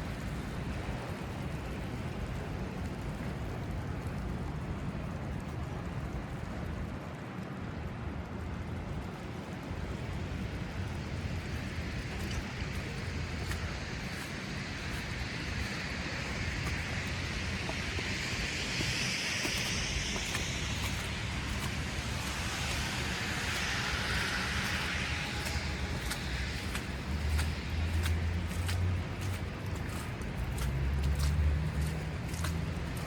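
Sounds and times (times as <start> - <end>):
low rumble of motor traffic: 8.3 - 33.0
car tyres hissing on snow: 9.7 - 33.0.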